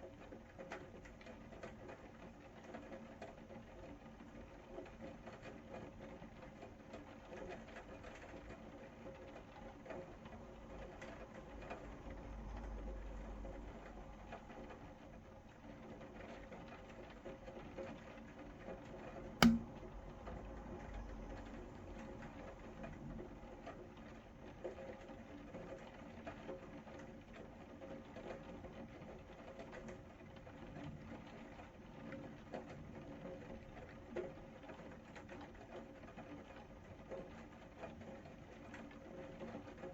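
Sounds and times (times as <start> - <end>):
sharp click: 19.4 - 19.8.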